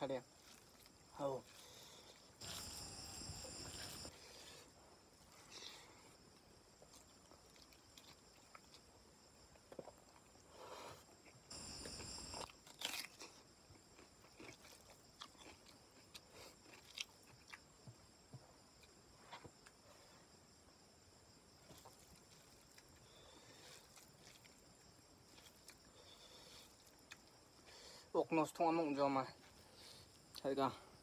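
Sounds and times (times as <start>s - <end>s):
person chewing food: 0.4s - 4.5s, 5.2s - 10.4s, 11.0s - 18.0s, 21.6s - 27.8s.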